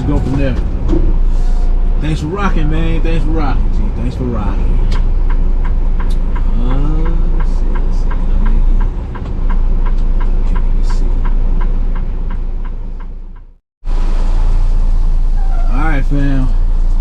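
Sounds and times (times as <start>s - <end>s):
truck engine rumbling in cab: 0.0s - 17.0s
light ticking: 4.0s - 13.6s.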